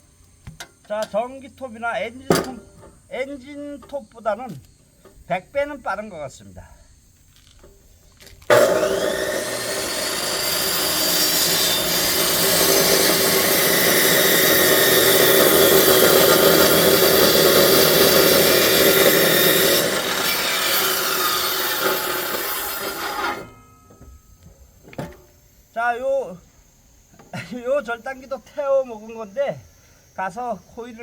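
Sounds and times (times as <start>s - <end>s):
electric saw cutting firewood: 8.5s - 23.6s.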